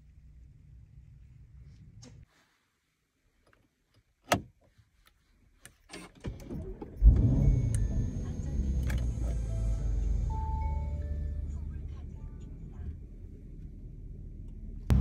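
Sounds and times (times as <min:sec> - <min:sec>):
car engine starting and idling: 0:05.9 - 0:15.0.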